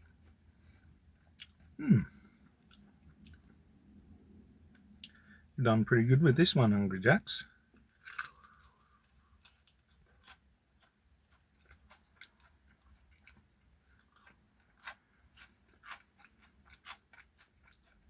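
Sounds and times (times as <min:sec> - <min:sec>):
chewing crispy food: 0:00.0 - 0:03.8, 0:07.7 - 0:18.0.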